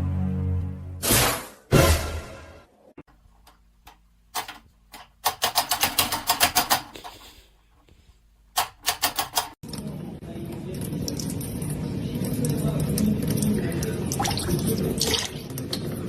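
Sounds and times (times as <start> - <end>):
rapid sharp clicks: 8.6 - 9.6.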